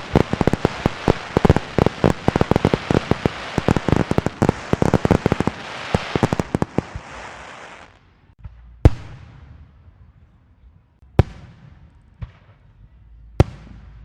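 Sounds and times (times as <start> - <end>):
echoing rumble: 0.0 - 7.5
fireworks exploding: 0.0 - 8.2.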